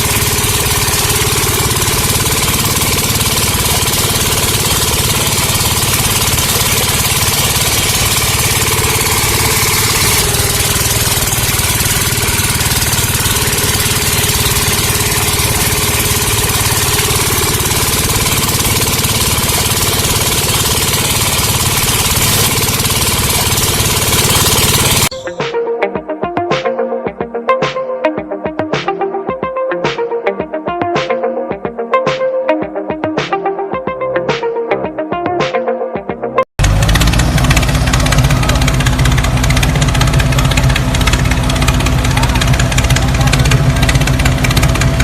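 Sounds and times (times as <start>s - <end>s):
engine idling with chugging: 0.0s - 25.2s, 36.6s - 45.0s
electronic music: 0.0s - 36.5s.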